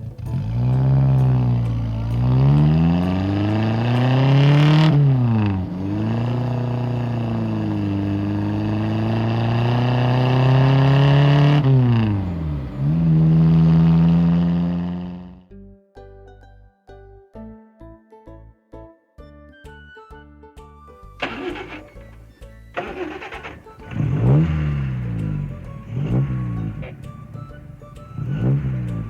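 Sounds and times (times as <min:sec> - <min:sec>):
motor vehicle engine revving: 0:00.0 - 0:15.4, 0:21.2 - 0:22.2, 0:22.8 - 0:29.0.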